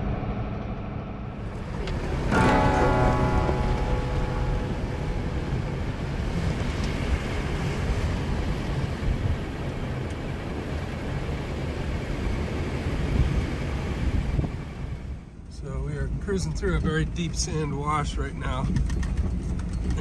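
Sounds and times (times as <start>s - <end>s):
truck engine rumbling in sand: 0.0s - 20.0s.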